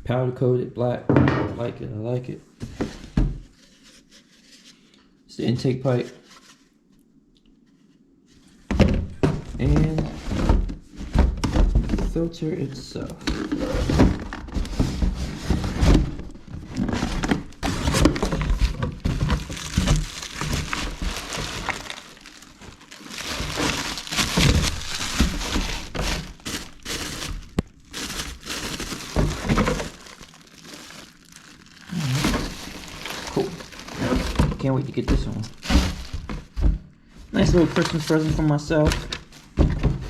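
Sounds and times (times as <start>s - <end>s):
plastic wrapping crinkling: 12.0s - 36.7s, 37.3s - 39.6s.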